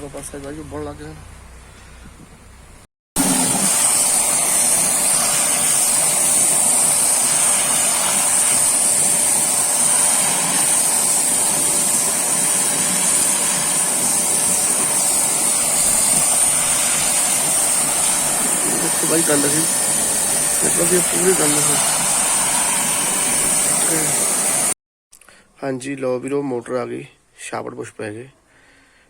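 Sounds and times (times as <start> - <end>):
pressure washer water jet hissing: 3.2 - 24.8
washer motor running: 3.2 - 24.8.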